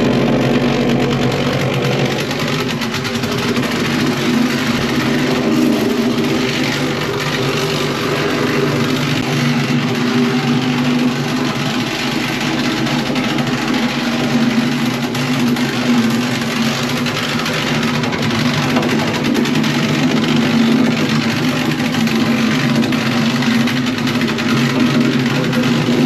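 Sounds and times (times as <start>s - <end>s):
compactor engine vibrating: 0.0s - 26.0s.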